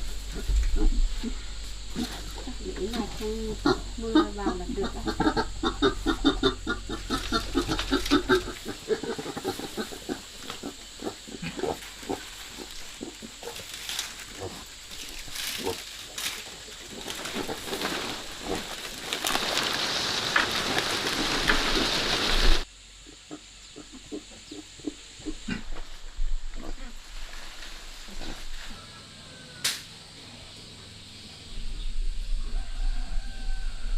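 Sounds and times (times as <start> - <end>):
pigs grunting: 0.0 - 13.7, 14.3 - 19.1, 20.3 - 25.8, 28.0 - 28.6
steady hiss: 0.0 - 33.9.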